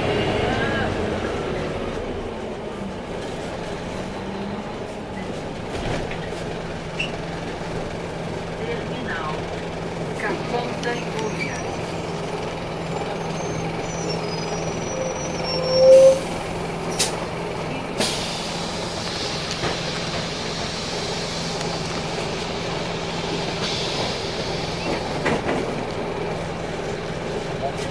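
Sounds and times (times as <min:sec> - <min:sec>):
diesel bus engine running: 0:00.0 - 0:27.9
rising squeal: 0:10.9 - 0:16.5
air brake clicks and hisses: 0:16.9 - 0:17.2, 0:18.0 - 0:22.5, 0:23.3 - 0:25.7.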